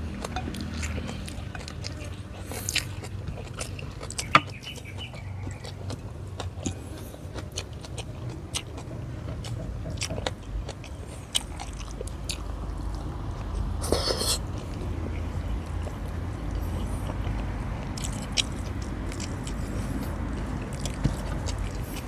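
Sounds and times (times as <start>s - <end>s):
person chewing food: 0.0s - 22.0s.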